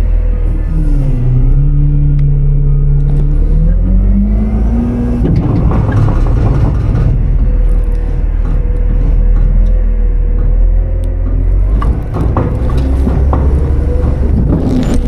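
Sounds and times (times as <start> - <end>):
garbage truck engine revving: 0.0 - 15.0
rough noisy rattle: 4.3 - 15.0.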